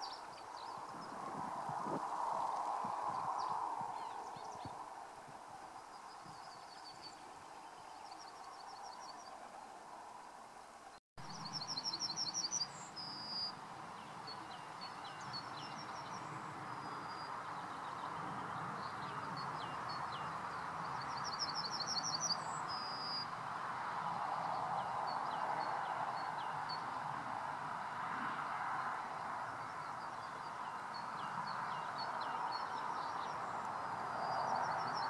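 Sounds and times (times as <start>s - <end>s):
songbird trilling: 11.3s - 13.6s.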